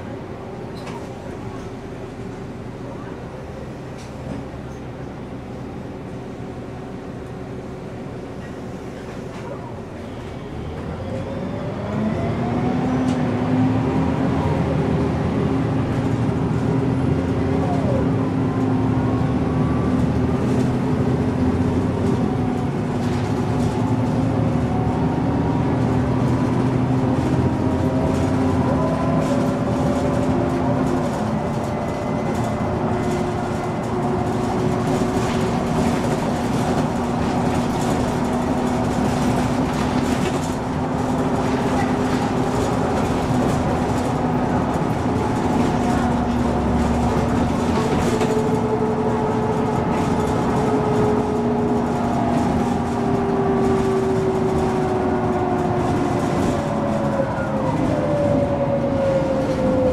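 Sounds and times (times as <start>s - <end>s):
bus engine drone: 0.0s - 59.9s.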